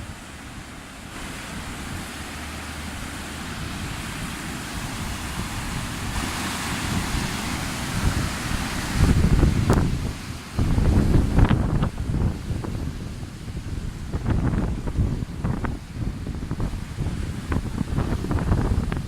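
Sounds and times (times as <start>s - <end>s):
fast-flowing river water: 0.0s - 19.0s
wind rumbling on microphone: 0.0s - 19.0s.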